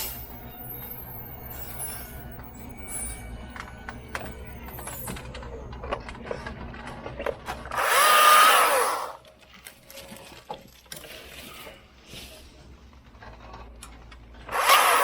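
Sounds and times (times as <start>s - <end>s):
chainsaw cutting a branch: 7.7s - 9.2s, 14.5s - 15.0s.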